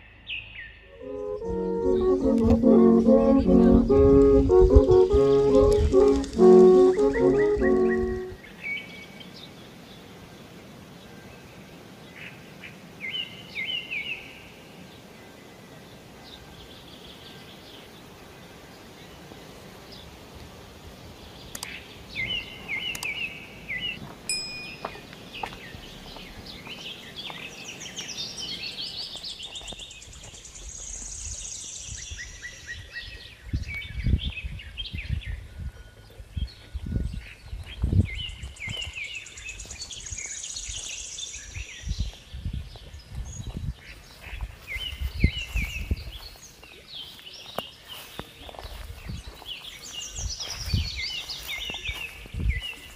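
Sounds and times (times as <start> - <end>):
steady outdoor hiss: 0.0 - 52.9
small birds chirping: 21.1 - 35.2, 36.0 - 52.9.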